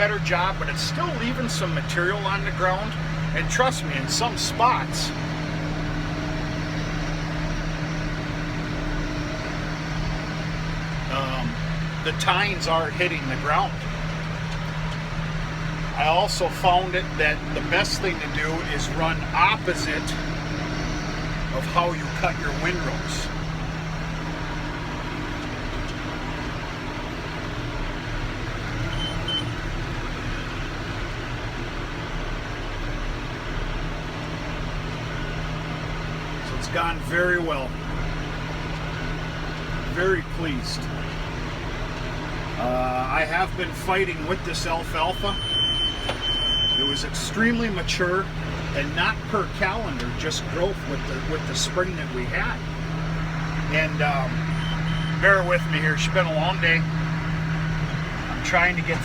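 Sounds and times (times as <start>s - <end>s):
tractor engine running under load: 0.0s - 59.0s
short high beeps: 45.3s - 46.8s, 54.5s - 55.2s.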